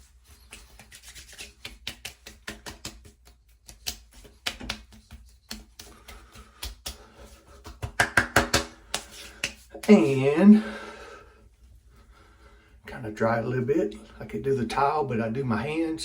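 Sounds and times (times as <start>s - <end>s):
hands slapping face: 0.4s - 10.1s.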